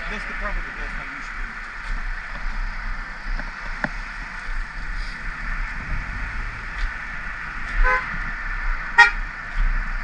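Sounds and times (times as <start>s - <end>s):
road noise: 0.0s - 10.0s
vehicle horn toot: 7.8s - 8.1s, 9.0s - 9.2s.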